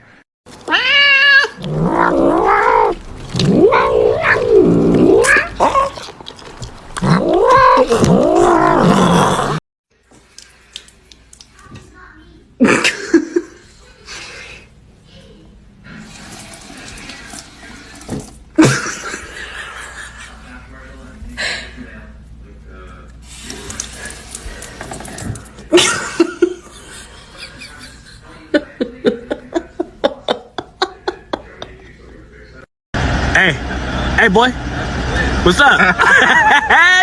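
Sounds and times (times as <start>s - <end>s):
cat yowling: 0.7s - 6.0s, 7.0s - 9.6s.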